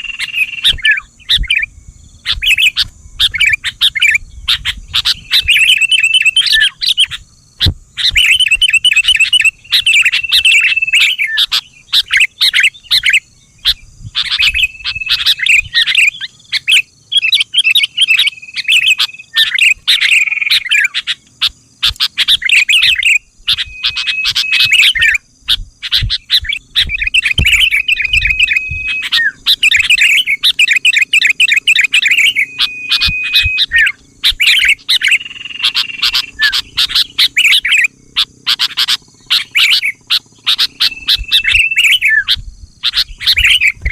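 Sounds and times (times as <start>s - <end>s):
bird song chirps and whistles: 0.0s - 43.9s.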